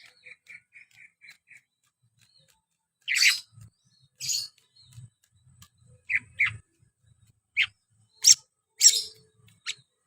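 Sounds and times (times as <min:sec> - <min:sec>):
bird singing sharp high phrases: 0:00.0 - 0:10.0.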